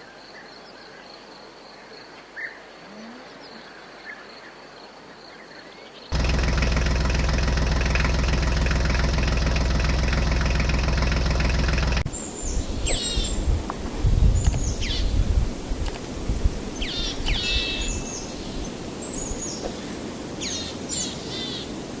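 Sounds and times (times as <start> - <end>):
birds chirping: 0.0 - 22.0
outdoor background noise: 0.0 - 22.0
low knocks and rumbles: 6.2 - 12.1.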